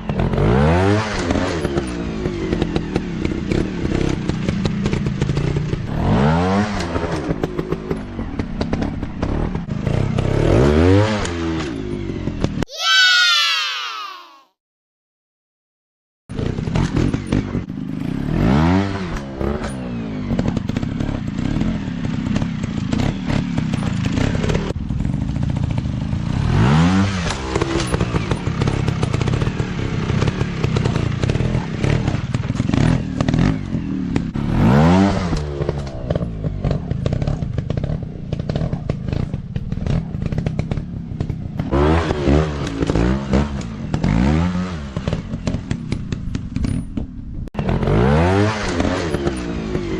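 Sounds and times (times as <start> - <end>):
dirt bike engines revving: 16.3 - 46.8, 47.6 - 49.9.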